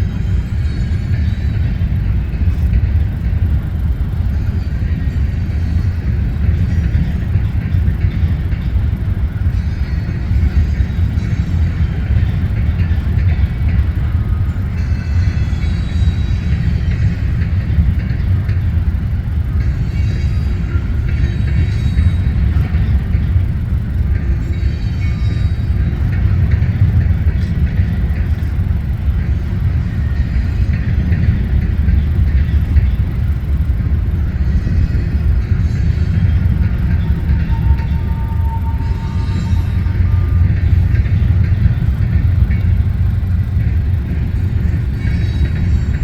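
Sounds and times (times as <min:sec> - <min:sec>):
train wheels rumbling on rails: 0:00.0 - 0:46.0
faint high squeals: 0:34.5 - 0:41.8.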